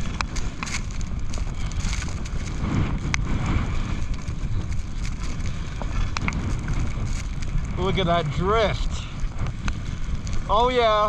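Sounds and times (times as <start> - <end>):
wind rushing over microphone: 0.0 - 11.0
faint sharp ticks: 6.0 - 7.5.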